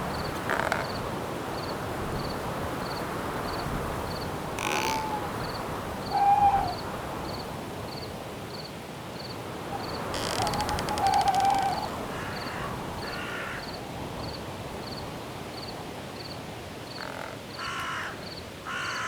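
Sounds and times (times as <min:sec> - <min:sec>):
cricket chirping: 0:00.0 - 0:19.0
wind-like hiss: 0:00.0 - 0:19.0
owl hooting: 0:04.6 - 0:05.5, 0:06.1 - 0:06.9, 0:09.8 - 0:12.3.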